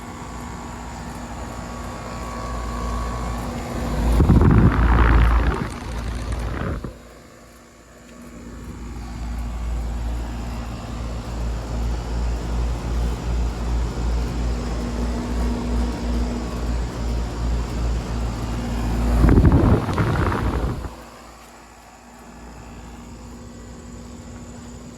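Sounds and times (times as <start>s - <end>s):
compressor hum: 0.0s - 24.9s
condenser fan rushing: 0.0s - 24.9s
loud noisy surge: 3.1s - 7.1s, 18.6s - 21.2s.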